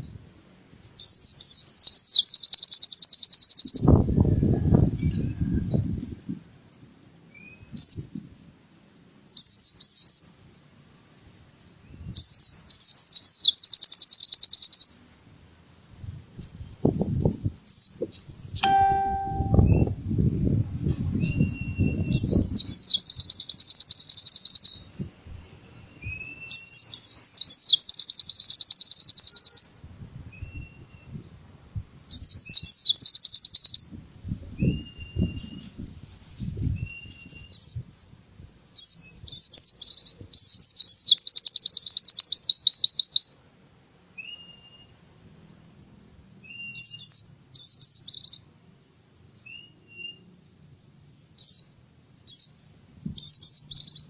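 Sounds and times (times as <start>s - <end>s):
bird singing fast high trills: 18.5s - 20.0s
bird whistled notes: 18.6s - 20.0s.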